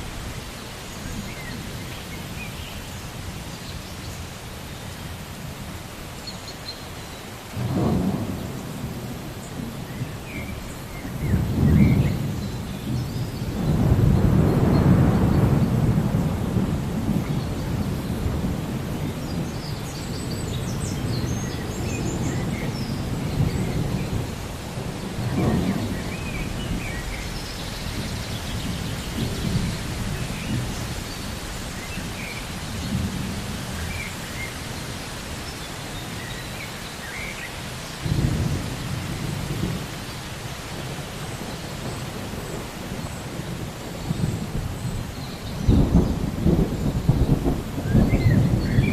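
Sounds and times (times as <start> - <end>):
steady rain hiss: 0.0 - 48.9
rolling thunder: 7.6 - 10.4, 11.0 - 31.1, 38.0 - 40.0, 40.7 - 48.9.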